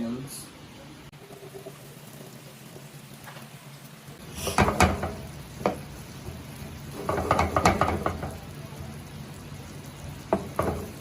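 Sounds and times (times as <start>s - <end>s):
onions sizzling in frying pan: 1.0s - 11.0s
utensil scraping and knocking pan: 4.4s - 5.8s, 6.9s - 8.4s, 10.3s - 11.0s.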